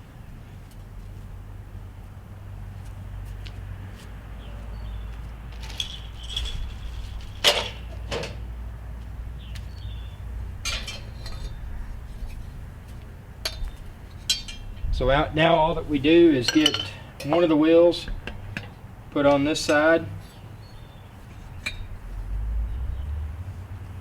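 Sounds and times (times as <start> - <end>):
metal parts clinking and knocking: 5.5 - 8.4, 10.6 - 11.6, 13.4 - 14.9, 16.4 - 17.5
steady low rumble: 8.5 - 16.5, 21.2 - 24.0.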